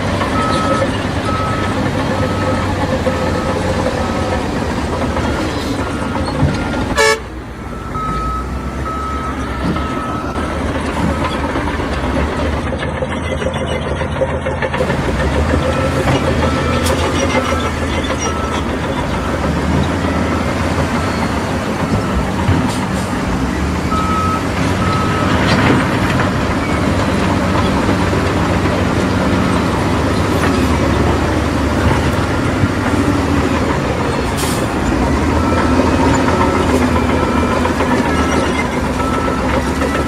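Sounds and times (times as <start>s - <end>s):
reversing alarm beeping: 0.0s - 12.6s, 15.6s - 40.0s
heavy machinery running: 0.0s - 40.0s.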